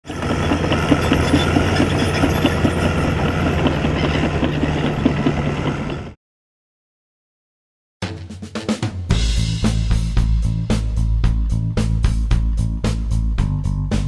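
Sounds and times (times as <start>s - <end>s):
heavy engine idling: 0.0s - 6.2s.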